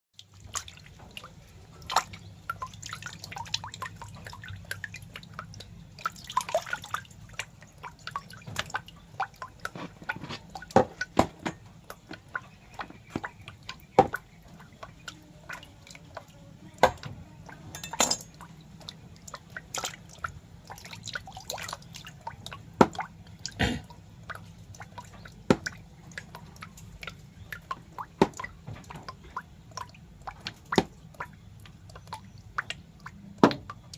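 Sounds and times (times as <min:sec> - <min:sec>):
wet clicks and drips: 0:00.2 - 0:33.9.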